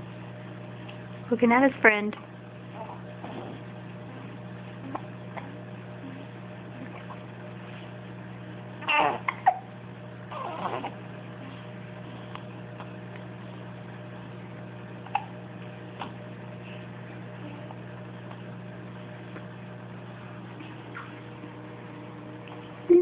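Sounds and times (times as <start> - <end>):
steady low hum: 0.0 - 23.0
baby vocalizing: 8.8 - 9.7, 10.3 - 11.0, 15.0 - 15.3.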